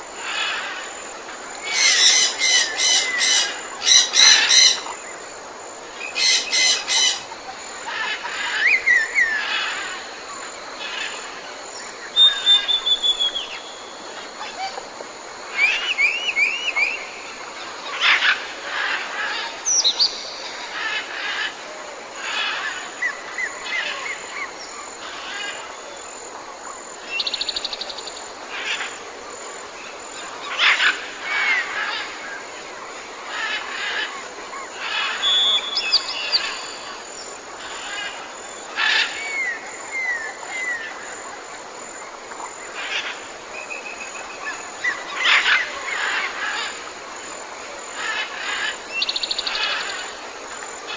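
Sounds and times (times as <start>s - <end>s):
background hiss: 0.0s - 50.9s
wild birds calling and singing: 0.1s - 10.1s, 30.0s - 50.9s.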